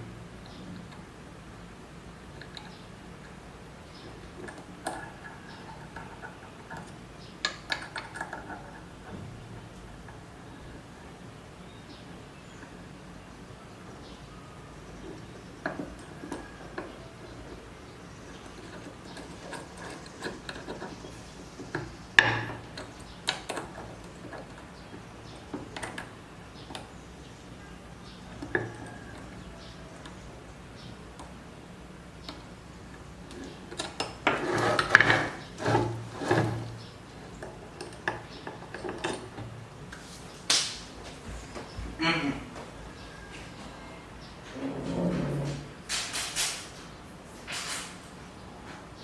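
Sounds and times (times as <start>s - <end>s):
metal tools clinking and knocking: 37.4s - 39.6s.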